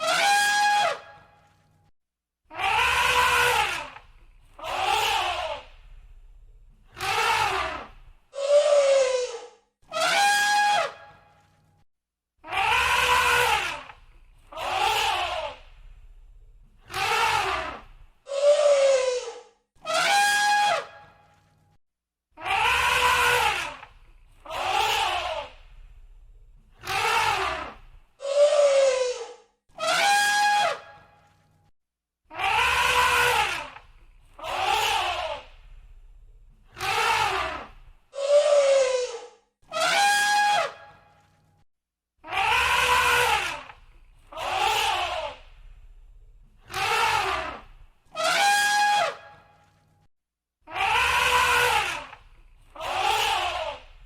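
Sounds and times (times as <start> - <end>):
elephant trumpeting: 0.0 - 1.2, 2.6 - 4.0, 4.6 - 5.6, 6.9 - 11.2, 12.5 - 13.9, 16.9 - 21.1, 22.4 - 25.7, 26.8 - 31.0, 32.4 - 33.8, 36.7 - 41.2, 42.2 - 45.8, 46.6 - 49.7, 50.7 - 54.0.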